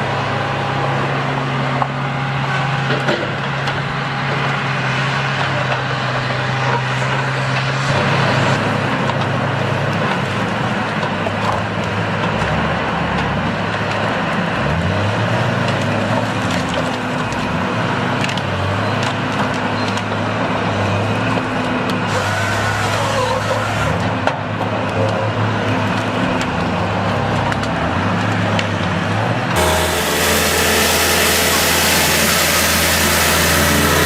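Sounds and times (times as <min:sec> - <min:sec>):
heavy machine engine running: 0:00.0 - 0:34.0
wood cracking and splintering: 0:10.0 - 0:20.4.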